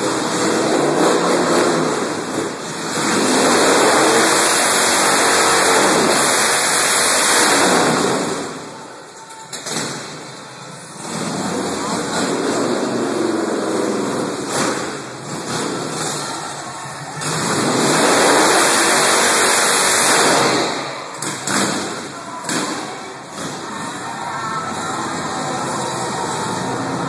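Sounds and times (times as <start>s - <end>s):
motorcycle engine revving: 0.0s - 8.7s, 17.2s - 24.0s.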